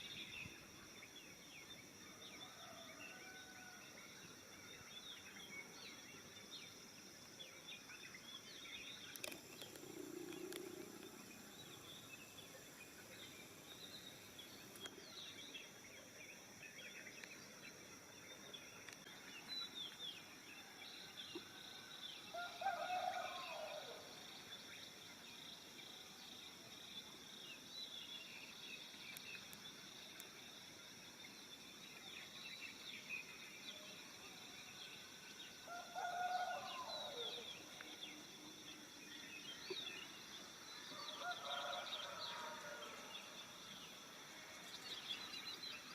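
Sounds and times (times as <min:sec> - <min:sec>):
steady insect drone: 0:00.0 - 0:45.9
distant rooster crowing: 0:22.3 - 0:24.1, 0:35.7 - 0:37.4, 0:41.0 - 0:43.4.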